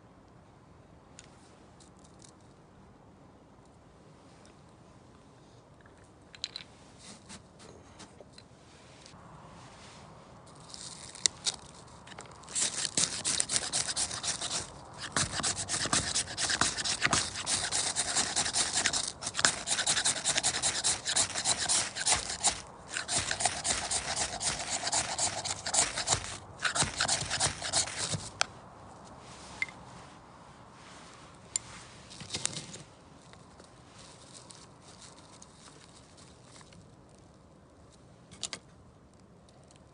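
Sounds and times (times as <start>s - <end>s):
knife shaving wood: 12.4s - 28.4s.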